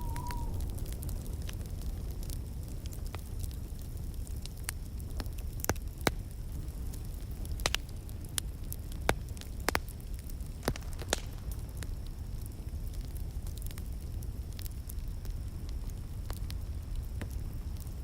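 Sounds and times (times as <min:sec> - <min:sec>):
low rumble of flames: 0:00.0 - 0:18.0
wood fire crackling: 0:00.0 - 0:18.0.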